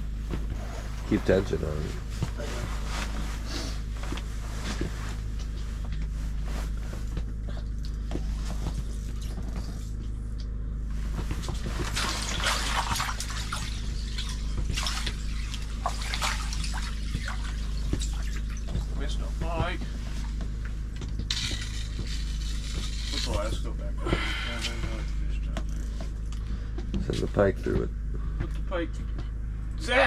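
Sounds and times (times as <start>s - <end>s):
steady low rumble: 0.0s - 30.0s
water splashing and dripping: 11.8s - 18.8s.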